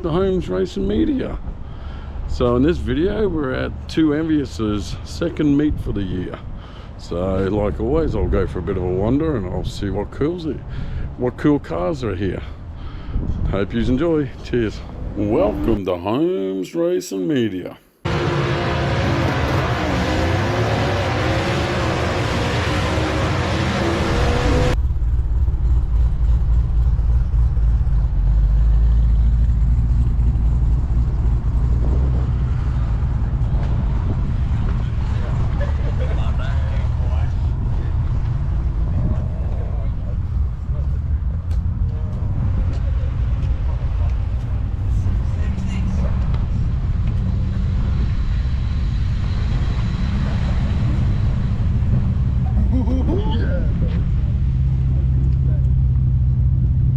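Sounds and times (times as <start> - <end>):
car engines idling: 18.1 - 47.6, 48.2 - 56.9
car engine idling: 21.1 - 32.0.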